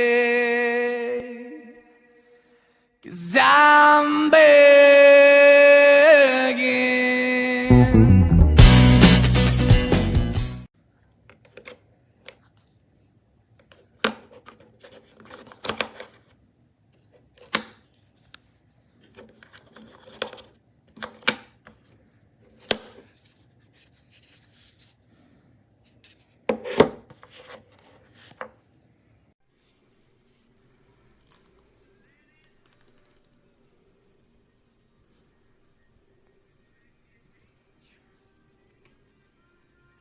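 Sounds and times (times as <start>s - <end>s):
light rubbing and scraping: 11.4s - 16.4s, 17.0s - 25.0s, 25.9s - 28.6s.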